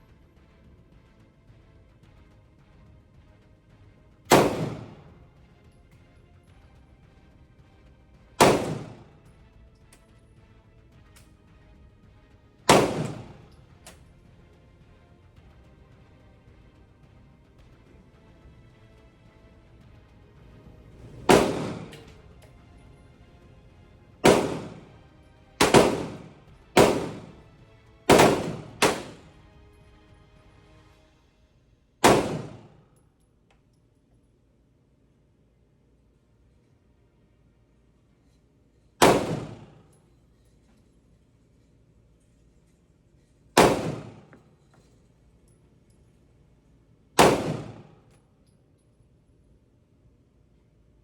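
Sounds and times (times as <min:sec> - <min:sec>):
pistol shots echoing: 0:04.3 - 0:05.2, 0:08.4 - 0:09.3, 0:12.7 - 0:14.0, 0:21.2 - 0:22.3, 0:24.2 - 0:27.5, 0:28.1 - 0:29.4, 0:32.0 - 0:32.8, 0:39.0 - 0:39.8, 0:43.6 - 0:44.4, 0:47.2 - 0:48.1.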